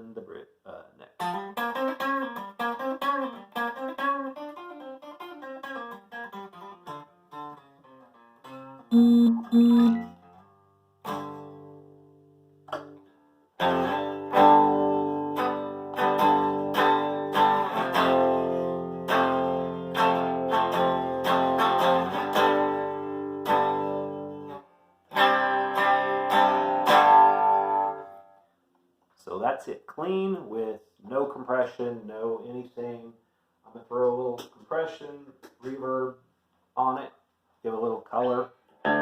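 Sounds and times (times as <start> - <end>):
clean electric guitar chords: 8.9 - 10.0.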